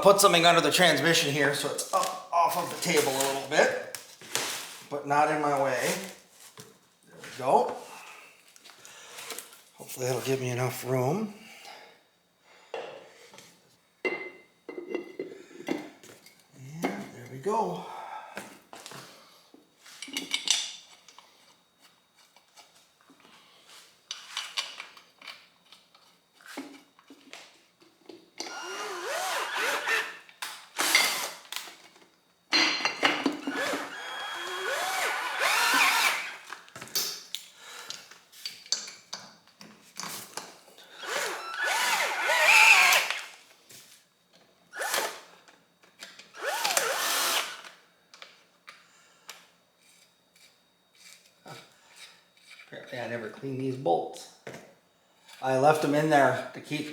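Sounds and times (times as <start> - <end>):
clicks and handling of parts: 24.1 - 28.6
drill running: 28.4 - 30.2, 30.8 - 31.4, 33.4 - 36.5, 41.0 - 43.3, 44.8 - 45.2, 46.4 - 47.7.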